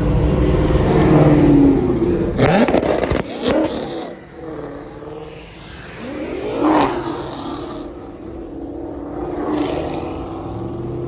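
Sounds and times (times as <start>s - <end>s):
car engine revving and accelerating: 0.0s - 11.0s.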